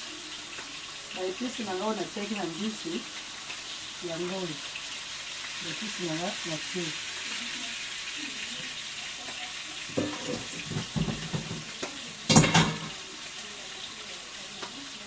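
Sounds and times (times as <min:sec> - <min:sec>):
sauce sizzling in a pan: 0:00.0 - 0:15.0
utensil clattering against pot: 0:09.9 - 0:11.7, 0:12.3 - 0:13.0.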